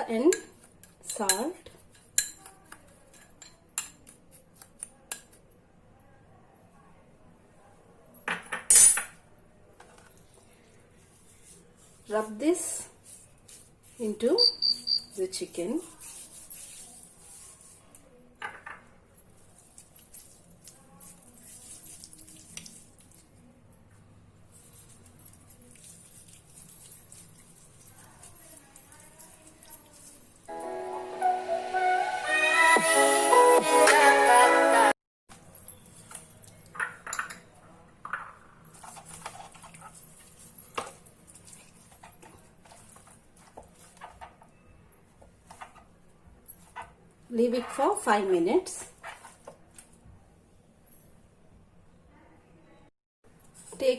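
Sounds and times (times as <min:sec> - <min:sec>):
wet handling of raw chicken: 0:19.4 - 0:23.4, 0:38.8 - 0:44.0.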